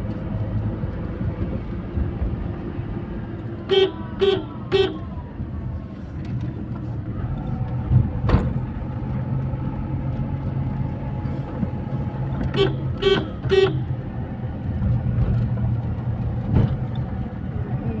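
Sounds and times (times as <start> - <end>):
horn toots: 3.7 - 5.0, 12.5 - 13.9.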